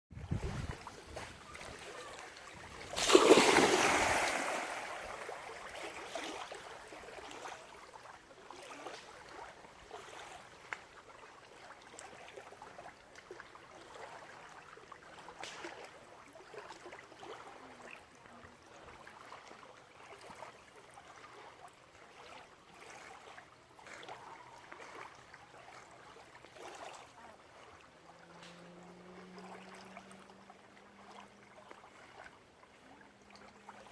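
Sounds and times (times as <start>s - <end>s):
water lapping: 0.1s - 33.9s
small splashes of dog swimming: 0.2s - 33.9s
dog splashing into water: 0.3s - 6.6s.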